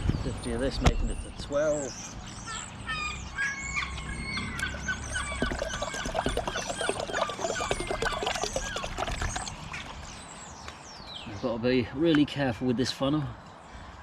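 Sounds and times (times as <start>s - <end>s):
birds chirping: 0.0s - 14.0s
liquid pouring from a bottle: 5.2s - 10.1s.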